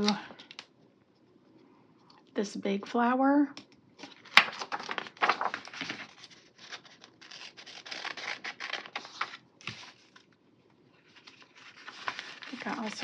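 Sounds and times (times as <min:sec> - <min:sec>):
paper sticker sheet rustling: 0:04.0 - 0:10.2, 0:11.0 - 0:13.0.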